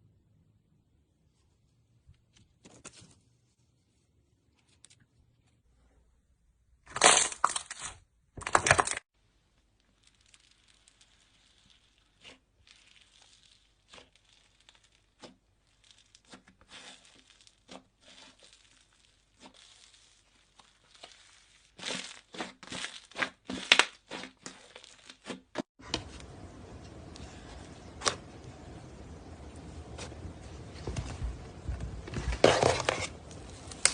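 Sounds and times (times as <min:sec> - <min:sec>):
slime popping and crackling: 0:09.9 - 0:25.3.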